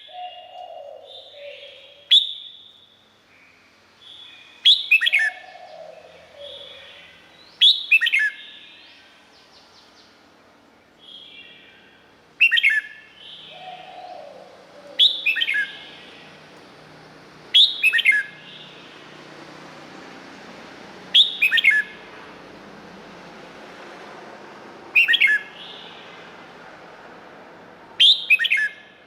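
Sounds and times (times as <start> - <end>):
bulbul singing: 4.0 - 10.2, 11.0 - 16.5, 17.5 - 19.2, 21.1 - 22.4, 24.9 - 26.3, 28.0 - 29.0.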